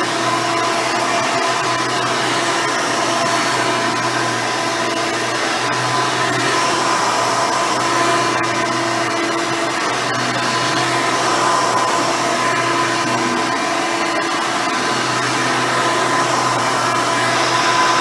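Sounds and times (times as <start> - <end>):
vacuum cleaner running: 0.1 - 18.0.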